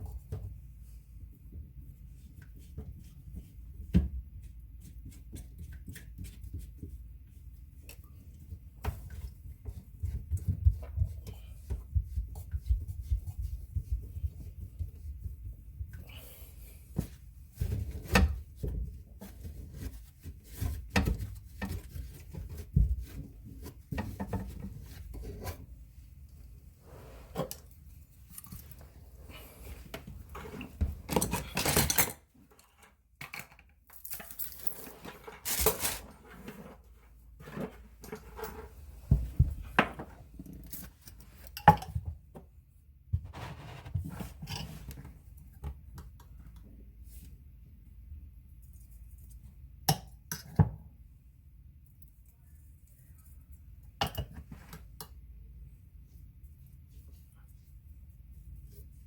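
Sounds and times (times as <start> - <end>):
tools and drain parts clattering: 30.3 - 36.0.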